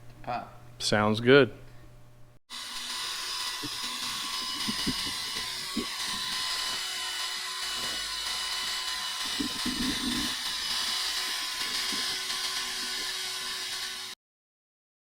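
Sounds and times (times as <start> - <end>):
power tool whining: 2.5 - 14.2.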